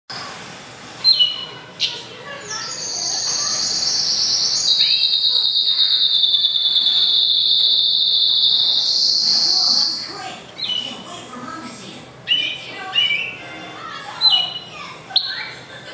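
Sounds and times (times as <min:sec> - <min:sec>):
bird singing fast trill: 0:01.1 - 0:10.0.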